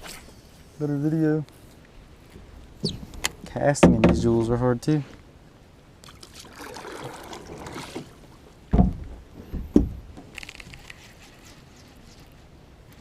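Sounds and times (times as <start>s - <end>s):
low knocks against kayak hull: 3.8s - 4.4s, 8.7s - 10.3s
soft rustling: 9.0s - 13.0s.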